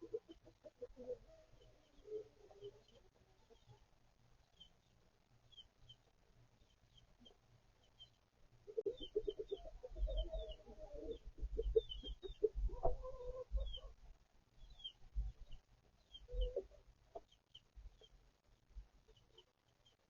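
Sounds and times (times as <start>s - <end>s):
chickens clucking: 0.0s - 4.0s, 8.6s - 14.0s, 14.7s - 18.1s
chicks peeping: 6.6s - 14.0s, 14.6s - 18.1s.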